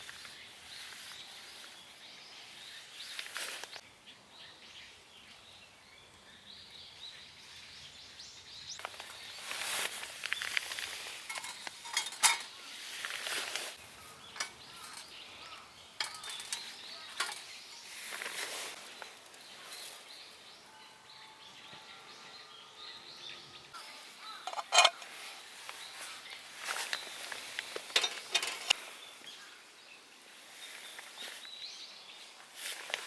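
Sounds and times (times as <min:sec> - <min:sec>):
metal grill parts clinking: 0:11.2 - 0:12.6, 0:14.2 - 0:18.2, 0:24.5 - 0:25.0, 0:27.9 - 0:28.8.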